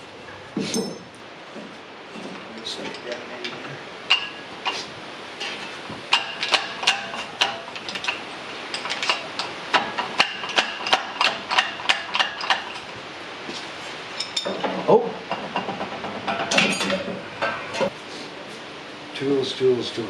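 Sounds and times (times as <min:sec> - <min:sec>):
metal tools clinking on metal: 0:00.6 - 0:01.2, 0:14.2 - 0:15.7, 0:16.3 - 0:17.9.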